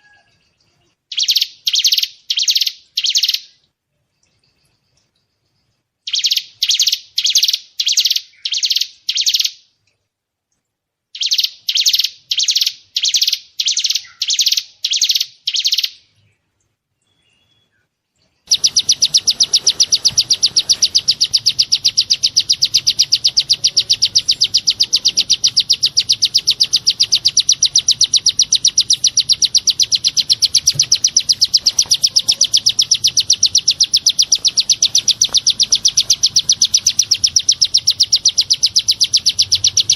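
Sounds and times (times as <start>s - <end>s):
songbird high chirps: 0.0s - 9.6s, 11.1s - 39.9s
rapid high bird trill: 18.5s - 39.9s.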